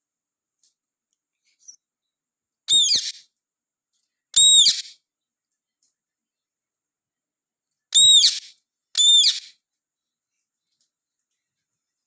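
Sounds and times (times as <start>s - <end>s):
parrot whistled calls: 2.7s - 3.2s, 4.4s - 4.9s, 8.0s - 9.5s.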